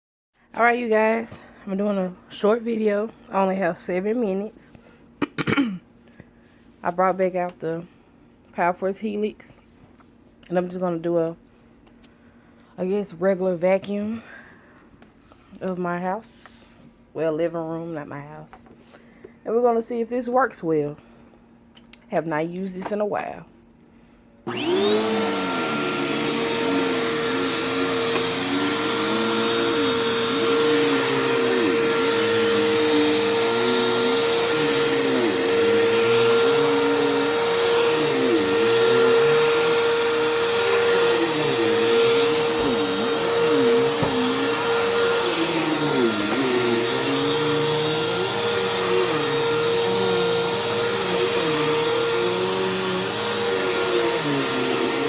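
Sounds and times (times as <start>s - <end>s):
vacuum cleaner motor whine: 24.5s - 55.0s.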